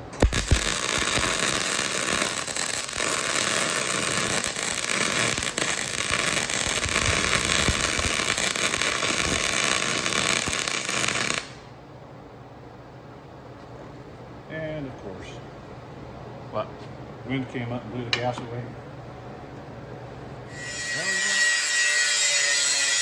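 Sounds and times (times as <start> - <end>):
welding arc crackling: 0.0 - 11.7.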